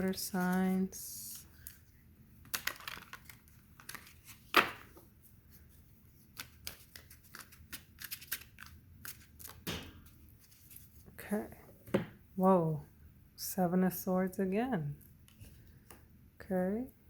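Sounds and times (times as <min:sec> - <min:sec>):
playing cards shuffling: 0:00.0 - 0:05.6, 0:06.2 - 0:11.0.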